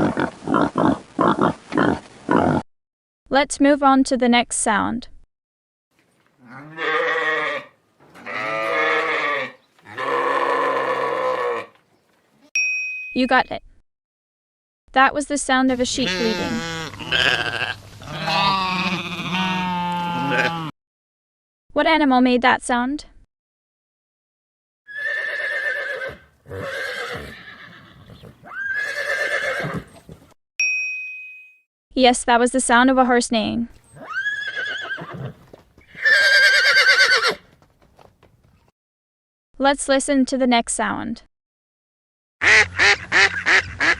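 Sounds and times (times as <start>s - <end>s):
horse neighing: 6.4s - 11.8s, 16.0s - 20.7s, 24.9s - 30.3s, 34.0s - 37.4s
sheep bleating: 6.4s - 11.8s, 16.0s - 20.7s.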